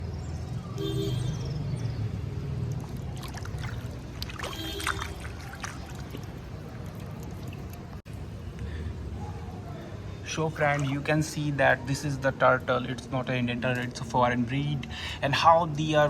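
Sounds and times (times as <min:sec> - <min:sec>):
water trickling and splashing: 0:02.4 - 0:08.3, 0:10.5 - 0:11.3.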